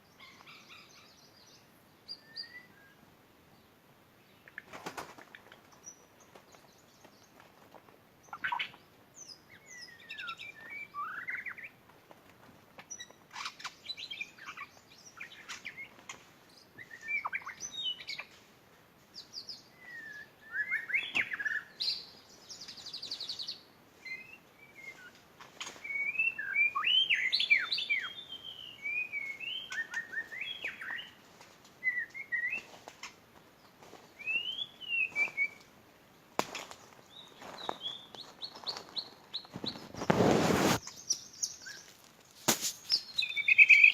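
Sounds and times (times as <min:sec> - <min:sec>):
bird singing whistled phrases: 0:02.1 - 0:02.9, 0:19.8 - 0:22.0, 0:25.8 - 0:31.1, 0:31.8 - 0:32.7, 0:34.2 - 0:35.6, 0:43.0 - 0:43.9
bird trill: 0:25.7 - 0:31.2, 0:34.2 - 0:35.6, 0:42.9 - 0:43.9.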